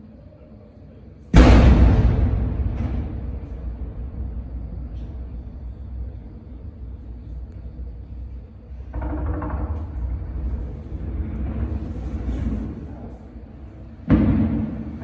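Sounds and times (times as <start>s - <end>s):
loud firework burst: 1.4s - 8.4s
distant fireworks rumbling: 1.4s - 8.9s.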